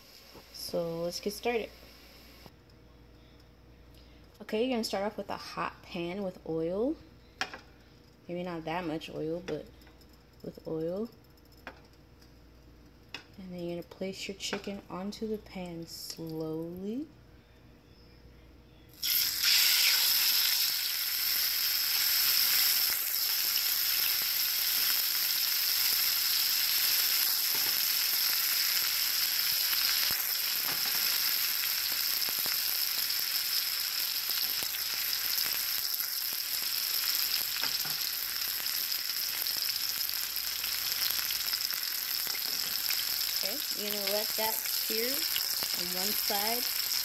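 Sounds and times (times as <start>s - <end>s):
chicken sizzling in hot oil: 19.0s - 47.0s
small crackles of frying: 19.0s - 47.0s.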